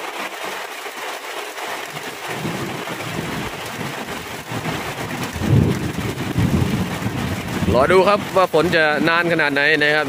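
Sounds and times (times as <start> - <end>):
steady rain: 0.0 - 10.0
rumble of thunder: 2.3 - 8.8.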